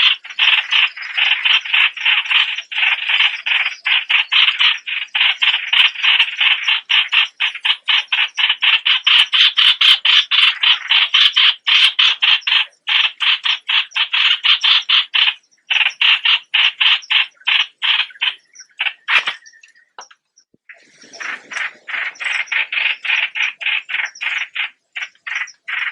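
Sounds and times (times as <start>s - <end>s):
bird harsh rasping calls: 0.0s - 20.2s, 20.8s - 25.9s.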